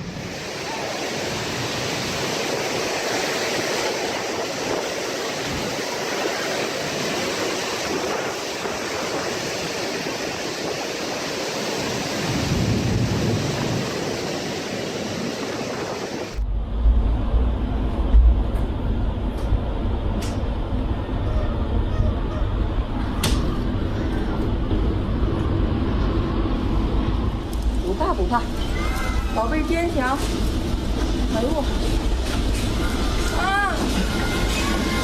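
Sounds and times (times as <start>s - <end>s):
strong wind rushing: 0.0s - 35.0s
low rumble: 15.6s - 35.0s.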